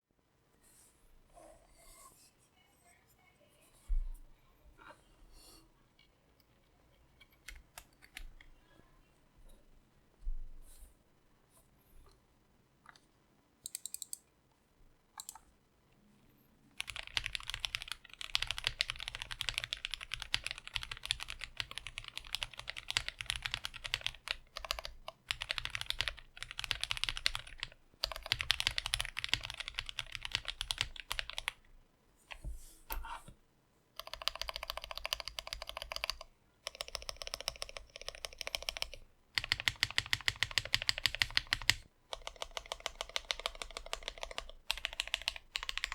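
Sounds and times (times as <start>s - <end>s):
mechanical keyboard typing: 7.4s - 8.5s, 13.6s - 14.2s, 15.2s - 15.4s, 16.8s - 31.7s, 34.0s - 45.9s.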